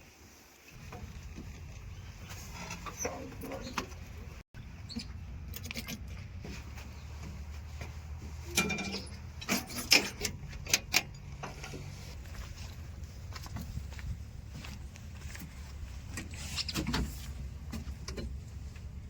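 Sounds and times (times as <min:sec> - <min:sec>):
diesel machinery rumbling: 0:00.8 - 0:19.0
sharp metal clanks and knocks: 0:08.5 - 0:11.7.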